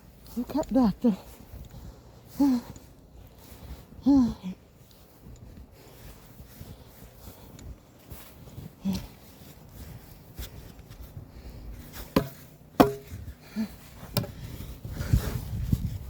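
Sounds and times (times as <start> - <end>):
hard objects knocking: 12.2 - 13.1.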